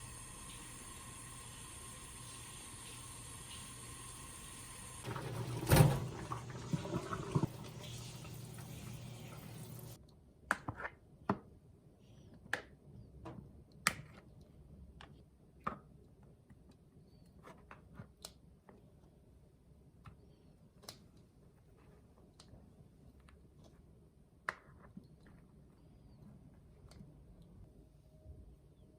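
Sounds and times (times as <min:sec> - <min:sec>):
running water rushing: 0:00.0 - 0:10.0.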